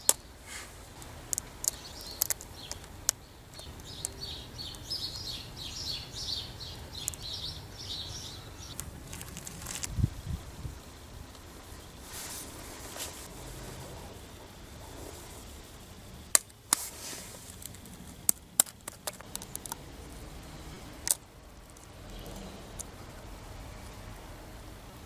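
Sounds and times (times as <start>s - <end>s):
sharp short clicks and cracks: 1.0s - 5.3s, 16.3s - 16.9s, 17.5s - 19.8s, 21.0s - 23.0s.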